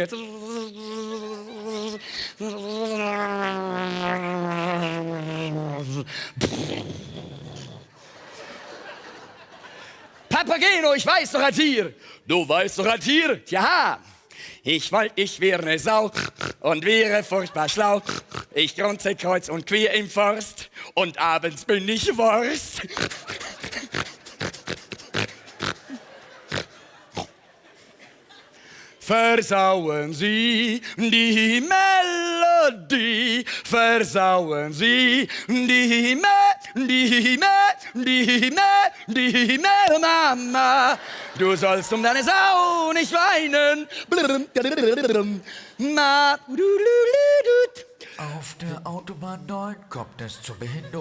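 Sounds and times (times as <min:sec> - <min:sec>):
man singing long notes: 0:00.0 - 0:07.8
man imitating pig grunts: 0:00.0 - 0:08.1, 0:16.1 - 0:16.8, 0:17.6 - 0:18.6, 0:22.6 - 0:27.4.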